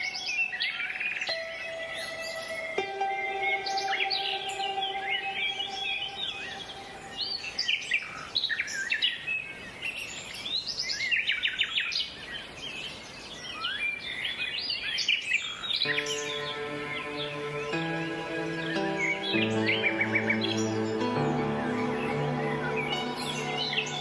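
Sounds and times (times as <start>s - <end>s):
soft music: 0.0s - 7.8s, 15.8s - 24.0s.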